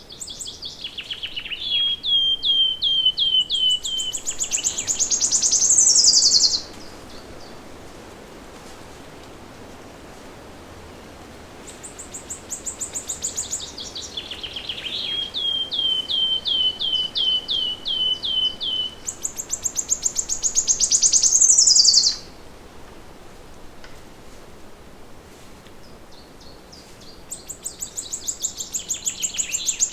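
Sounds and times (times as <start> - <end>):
faint forest background noise: 0.0 - 29.9
songbird trilling: 0.1 - 7.0, 11.9 - 22.3, 27.3 - 29.9.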